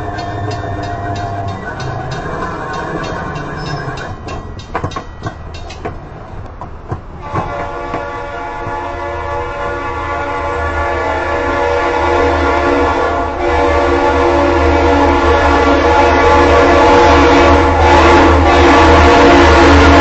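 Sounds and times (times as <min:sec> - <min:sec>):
wheels clacking over rail joints: 0:00.0 - 0:08.8
freight train rumbling: 0:00.0 - 0:20.0
locomotive air horn: 0:07.2 - 0:20.0.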